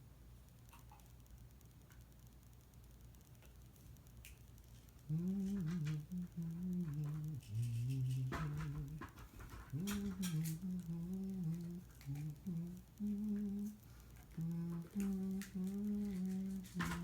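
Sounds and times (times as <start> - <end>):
person humming a slow tune: 5.0 - 17.0.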